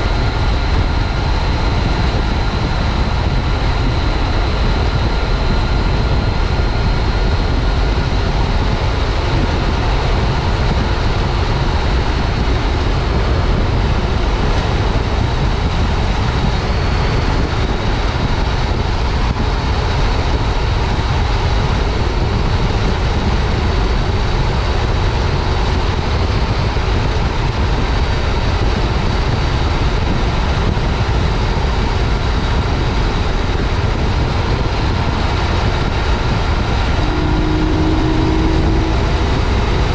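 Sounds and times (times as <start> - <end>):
wind rushing over camera: 0.0 - 39.9
motorcycle engine cruising: 32.6 - 39.9.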